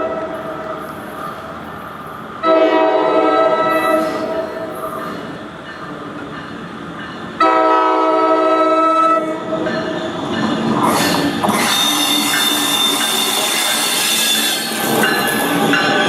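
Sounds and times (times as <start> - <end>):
train rolling on rails: 0.0 - 16.0
train air horn: 2.4 - 4.8, 7.4 - 9.4.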